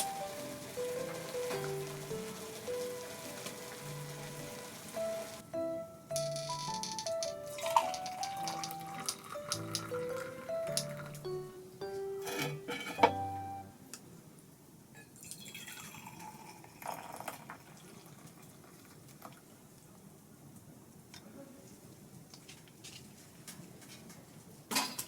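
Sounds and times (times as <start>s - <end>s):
liquid pouring and dripping: 6.6s - 11.2s, 15.2s - 19.5s.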